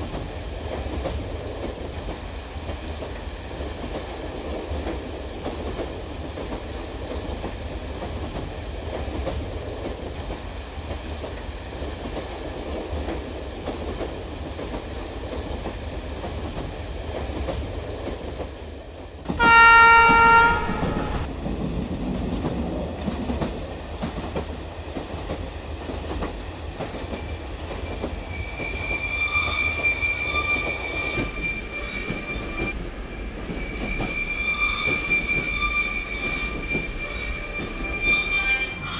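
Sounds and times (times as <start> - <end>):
toy train horn blast: 19.4 - 21.3.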